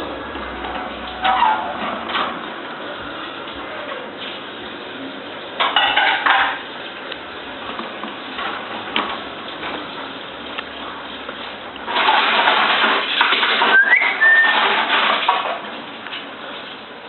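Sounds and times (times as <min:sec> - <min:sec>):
parrot chatter: 0:13.8 - 0:14.8.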